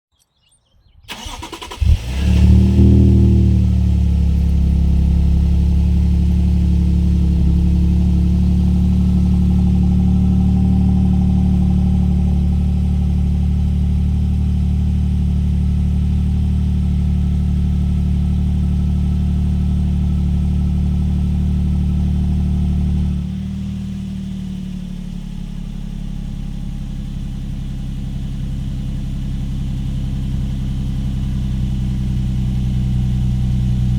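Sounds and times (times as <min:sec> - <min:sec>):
engine cranking: 0:01.1 - 0:02.8
engine idling: 0:01.1 - 0:33.9.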